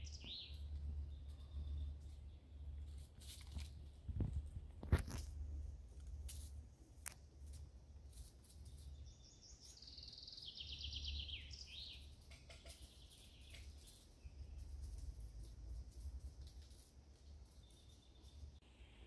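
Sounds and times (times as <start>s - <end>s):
low rumble on microphone: 0.0s - 6.2s
songbird trilling: 9.0s - 14.0s.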